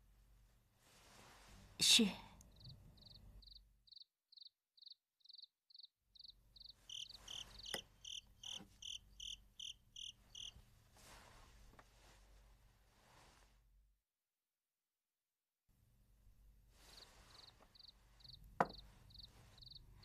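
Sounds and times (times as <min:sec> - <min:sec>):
crickets chirping: 0:02.5 - 0:10.6, 0:16.9 - 0:19.8
louder cricket chirp: 0:02.6 - 0:10.6.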